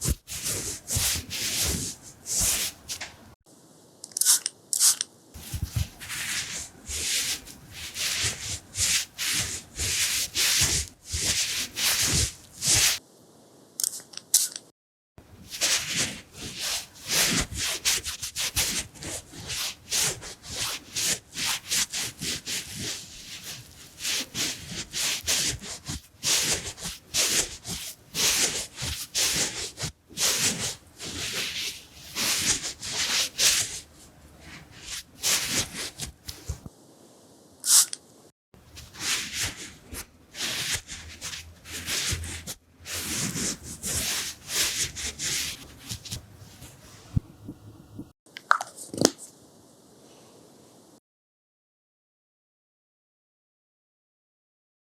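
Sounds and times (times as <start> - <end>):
close rubbing and wiping strokes: 0.0 - 3.4, 4.9 - 13.0, 15.4 - 36.7, 38.6 - 47.6.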